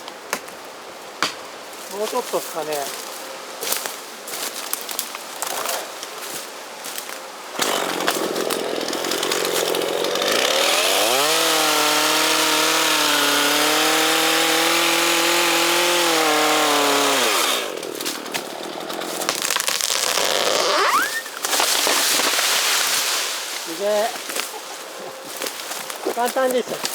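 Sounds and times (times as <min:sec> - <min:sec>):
chainsaw revving and cutting: 0:07.6 - 0:24.1.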